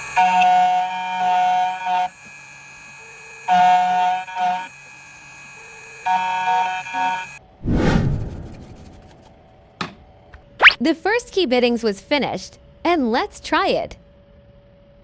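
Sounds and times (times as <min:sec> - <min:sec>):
loud hit: 0:07.6 - 0:09.3.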